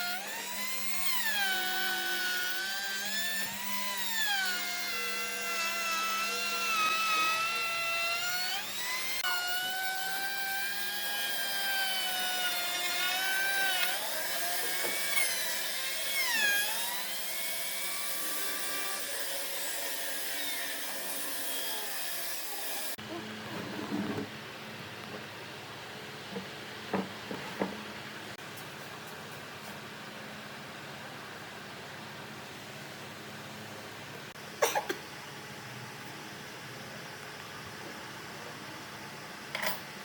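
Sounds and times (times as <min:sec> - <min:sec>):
power tool whining against wood: 0:00.0 - 0:24.3.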